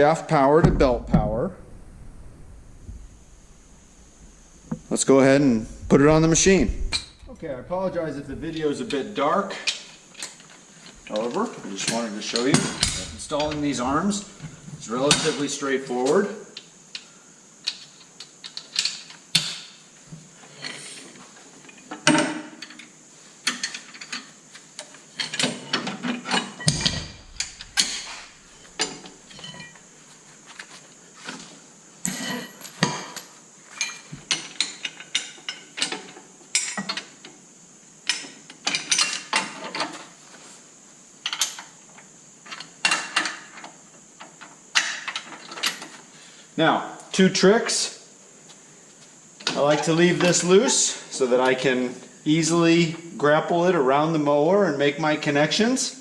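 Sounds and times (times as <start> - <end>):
metal clanks and rattles: 11.9 - 15.3, 25.2 - 29.8.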